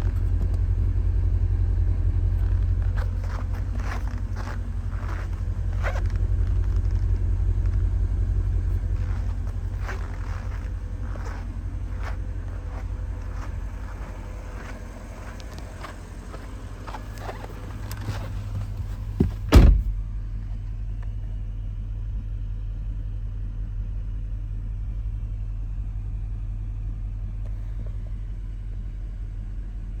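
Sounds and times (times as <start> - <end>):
car engine idling: 0.0 - 30.0
loud double thump: 19.2 - 20.0.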